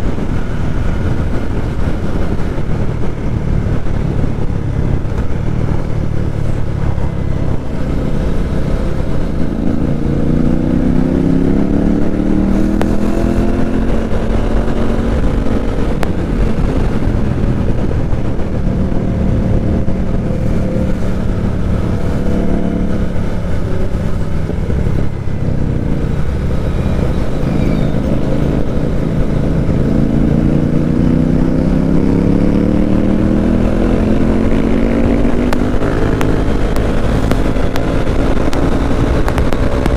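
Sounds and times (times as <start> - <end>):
motorcycle engine and exhaust: 0.0 - 39.9
road and wind noise: 0.0 - 39.9.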